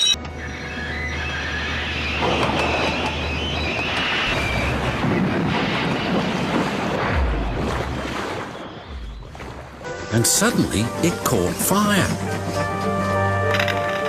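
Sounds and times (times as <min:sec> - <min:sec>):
high wheel squeal: 0:00.0 - 0:04.7.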